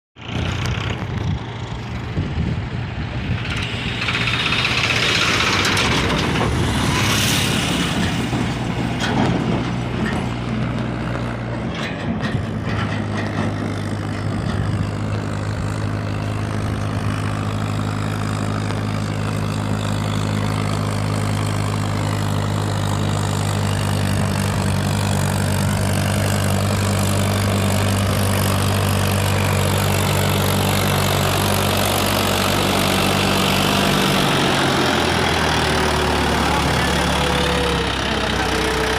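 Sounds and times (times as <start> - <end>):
engine knocks: 0.2 - 38.9
tractor diesel engine running: 0.2 - 38.9.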